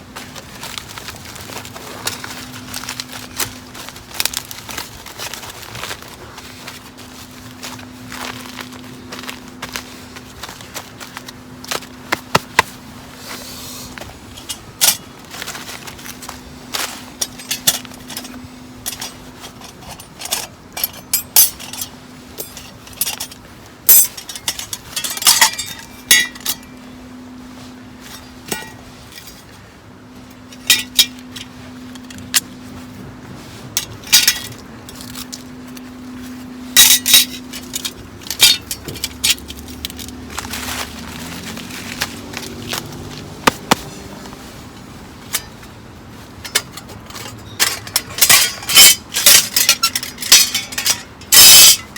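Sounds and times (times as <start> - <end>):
metal cookware clinking: 46.4 - 51.9.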